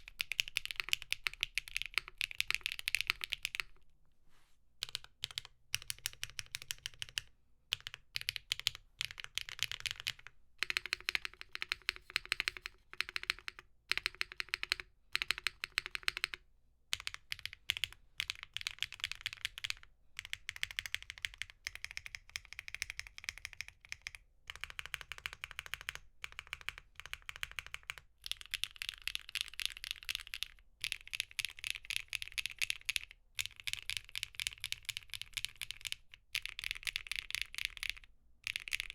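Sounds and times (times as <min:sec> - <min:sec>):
mechanical keyboard typing: 0:00.0 - 0:03.7, 0:04.8 - 0:38.9.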